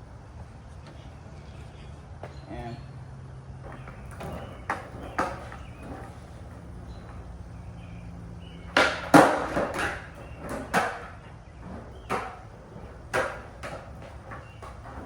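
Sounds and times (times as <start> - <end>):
skateboard clattering: 3.6 - 15.0.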